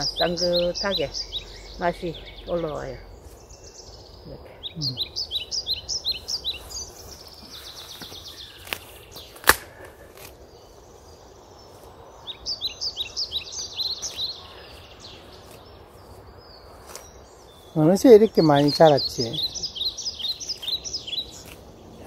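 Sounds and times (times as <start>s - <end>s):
songbird chirping: 0.0s - 22.0s.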